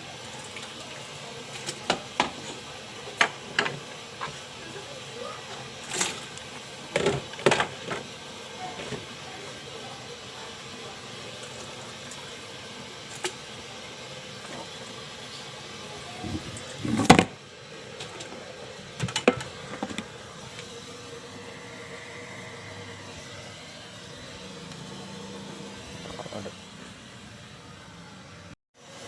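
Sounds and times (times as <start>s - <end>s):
pot boiling: 0.0s - 27.6s.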